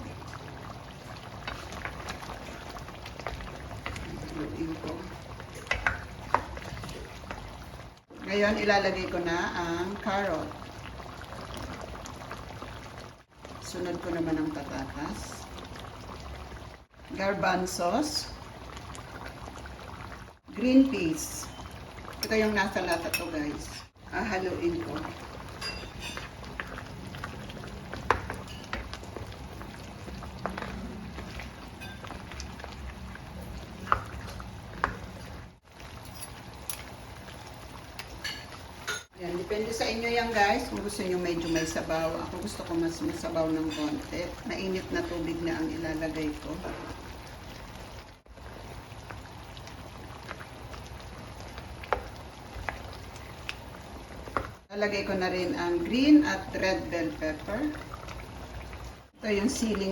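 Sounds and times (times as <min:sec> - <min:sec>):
stew bubbling in a pot: 0:00.0 - 0:59.9
spoon stirring: 0:30.1 - 0:32.4.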